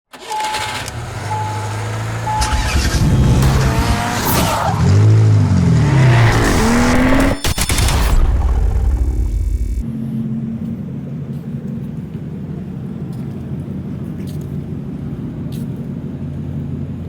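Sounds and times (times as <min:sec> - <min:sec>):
car engine revving: 0:00.2 - 0:09.8.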